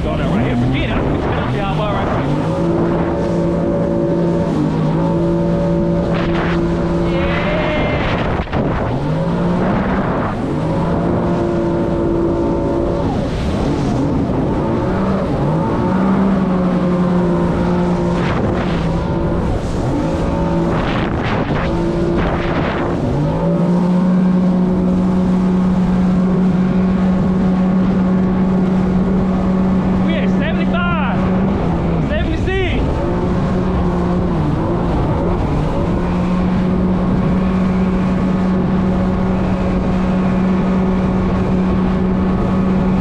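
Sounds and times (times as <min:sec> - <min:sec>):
jet ski engine revving: 0:00.0 - 0:43.0.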